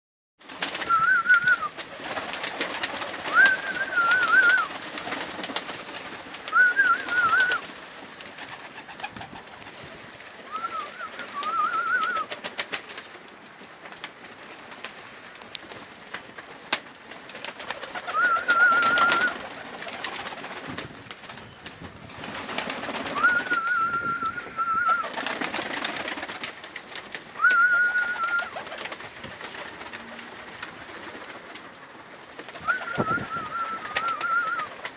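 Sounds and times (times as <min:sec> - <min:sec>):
bird calling: 0:03.2 - 0:05.2, 0:06.5 - 0:07.7, 0:18.0 - 0:19.5, 0:27.4 - 0:28.8, 0:32.5 - 0:34.9.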